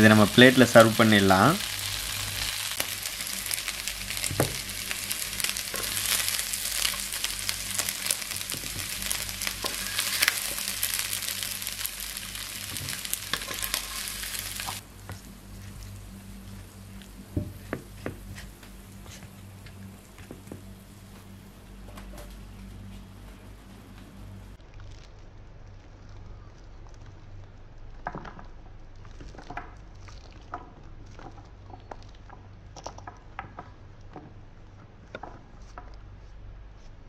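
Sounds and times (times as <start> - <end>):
chicken sizzling in frying pan: 0.0 - 14.8
steady low hum: 0.0 - 29.2
stirring clicks and scrapes: 2.7 - 19.4, 24.6 - 37.0.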